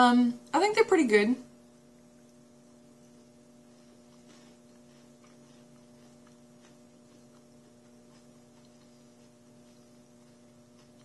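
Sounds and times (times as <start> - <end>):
low electrical hum: 0.0 - 11.0
faint chewing clicks: 2.2 - 3.4, 4.0 - 11.0.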